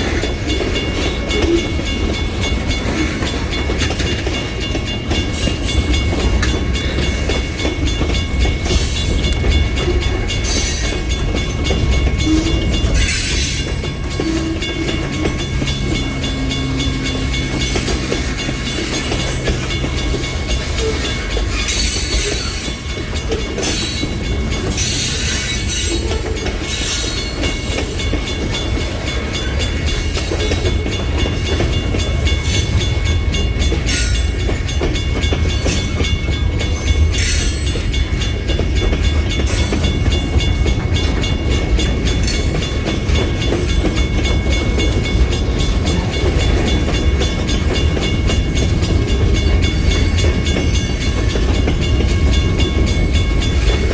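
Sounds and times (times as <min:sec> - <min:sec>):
freight train rumbling past: 0:00.0 - 0:53.9
wheels clacking on rails: 0:00.0 - 0:53.9
high wheel squeal: 0:12.1 - 0:20.0, 0:20.6 - 0:27.7.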